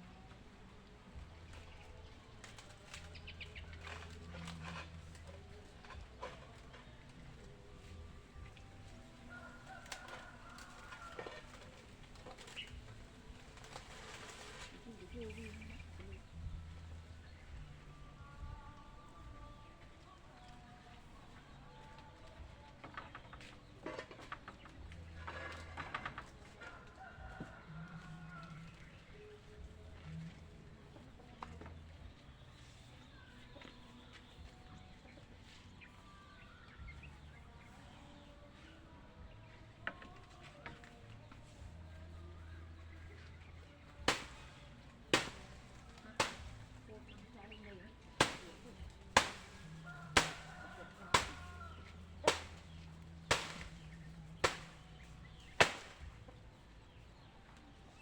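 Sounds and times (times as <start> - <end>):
hand tool striking wood structure: 3.8 - 6.7, 44.0 - 46.8, 48.2 - 51.6, 52.2 - 56.1.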